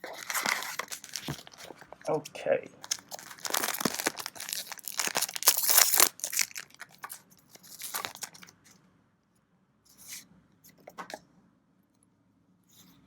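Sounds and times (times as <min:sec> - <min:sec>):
foil wrapper crinkling and tearing: 0:00.0 - 0:02.0, 0:02.8 - 0:08.5.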